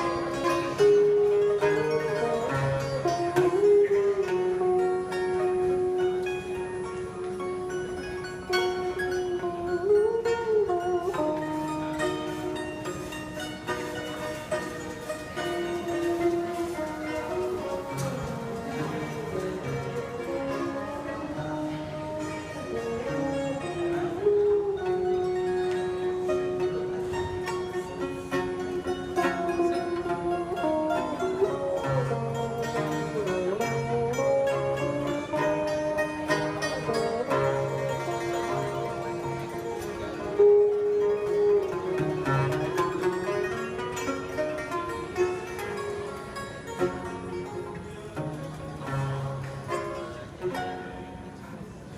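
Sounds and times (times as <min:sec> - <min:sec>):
plucked string music: 0:00.0 - 0:51.9.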